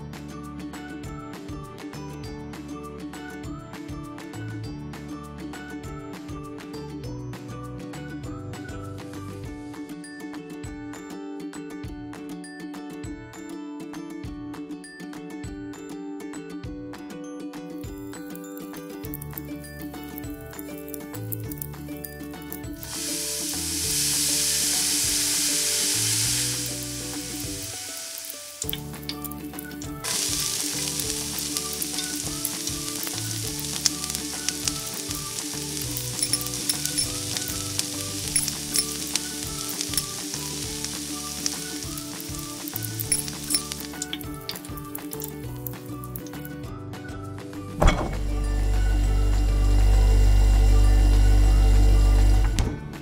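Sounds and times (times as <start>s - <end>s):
food sizzling in a pan: 18.6s - 46.4s
small pops of frying: 18.6s - 46.5s.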